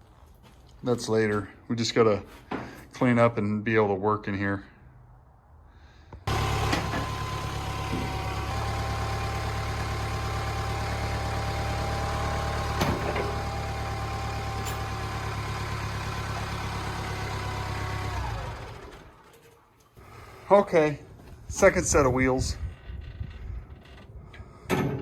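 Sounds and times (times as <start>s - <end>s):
diesel engine running: 6.3s - 19.4s, 20.0s - 22.6s.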